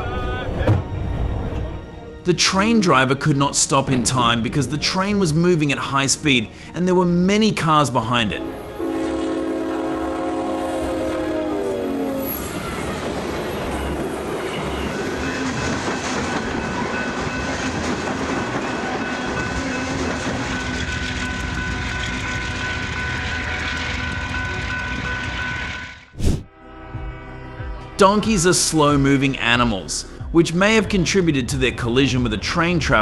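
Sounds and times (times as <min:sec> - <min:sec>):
train horn: 0:08.4 - 0:12.8, 0:20.5 - 0:26.0
train rumbling and clattering past: 0:12.3 - 0:25.7.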